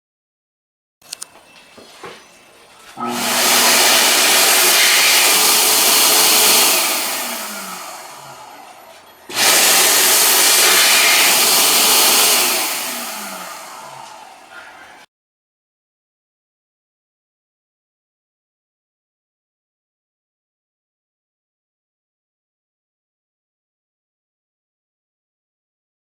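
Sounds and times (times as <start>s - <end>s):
hand dryer blowing: 2.0s - 15.1s.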